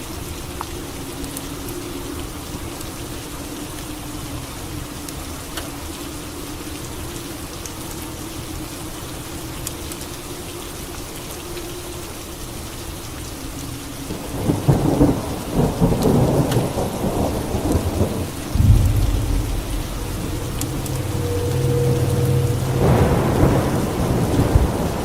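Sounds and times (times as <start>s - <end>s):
steady rain: 0.0s - 25.0s
low rumble of thunder: 14.3s - 25.0s
thunderclap crackling: 17.6s - 25.0s.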